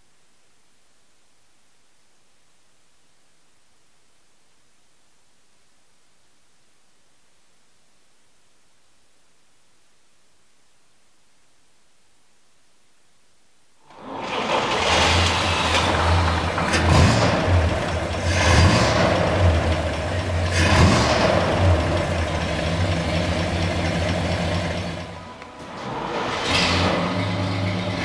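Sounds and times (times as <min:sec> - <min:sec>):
truck engine running: 0:13.9 - 0:28.0.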